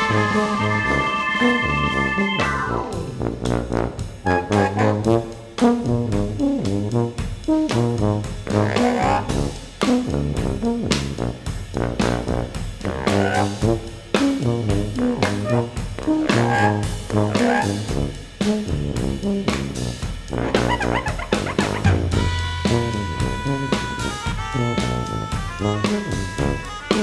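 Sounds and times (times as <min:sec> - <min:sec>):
keyboards: 0:00.0 - 0:05.7, 0:15.0 - 0:17.9, 0:20.4 - 0:27.0
jazz brass ensemble: 0:00.0 - 0:27.0
steady drum beat: 0:00.0 - 0:27.0.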